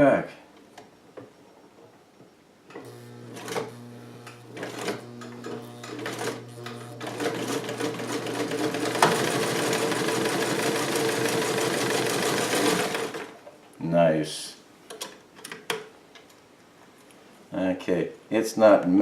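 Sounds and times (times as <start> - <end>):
sewing machine stitching: 2.8 - 13.4.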